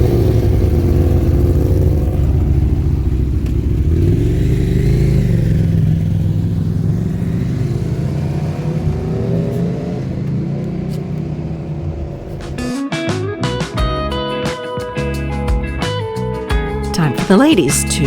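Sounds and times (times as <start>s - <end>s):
motorcycle engines running: 0.0s - 12.7s.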